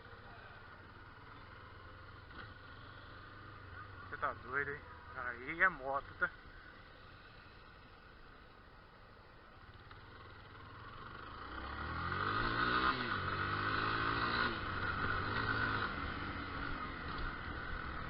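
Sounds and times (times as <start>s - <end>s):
motorcycle engine accelerating: 9.7s - 18.0s.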